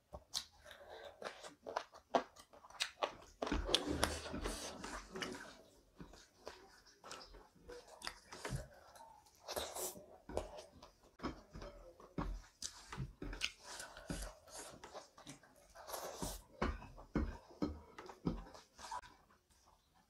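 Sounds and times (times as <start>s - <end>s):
chewing and lip-smacking: 0.1s - 11.0s, 12.5s - 16.5s.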